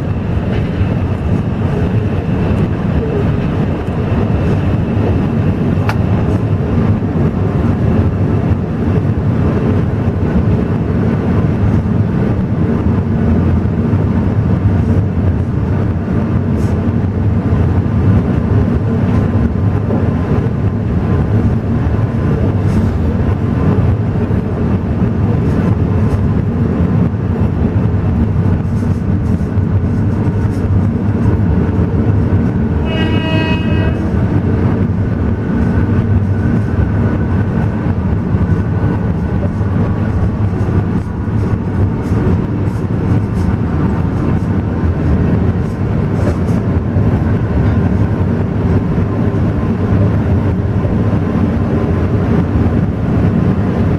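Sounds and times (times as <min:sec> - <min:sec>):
train wheels rumbling: 0:00.0 - 0:53.9
train horn blast: 0:32.8 - 0:34.4.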